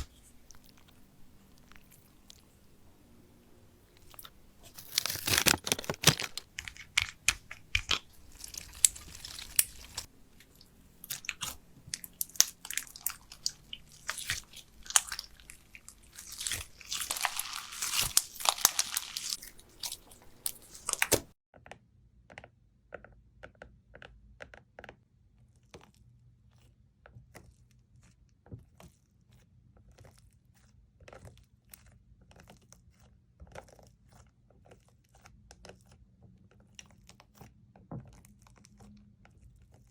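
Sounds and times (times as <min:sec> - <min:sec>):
slime crackling and popping: 0:00.0 - 0:02.6, 0:03.9 - 0:21.3.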